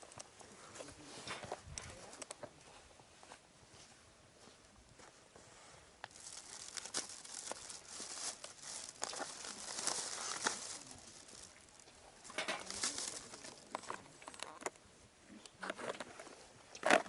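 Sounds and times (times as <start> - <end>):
crinkling and rustling: 0.0 - 14.8, 15.4 - 17.0.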